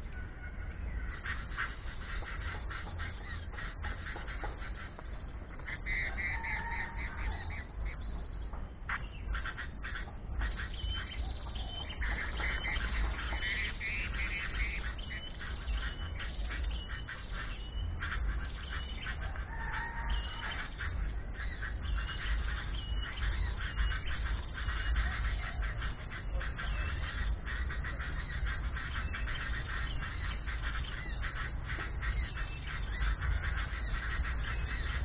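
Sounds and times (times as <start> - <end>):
birds squawking: 0.0 - 35.0
low steady rumble: 0.0 - 35.0.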